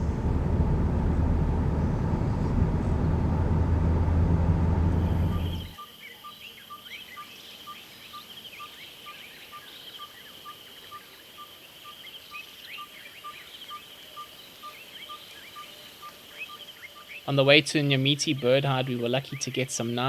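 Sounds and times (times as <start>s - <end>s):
low vehicle engine: 0.0s - 5.8s
birds chirping: 0.0s - 6.8s.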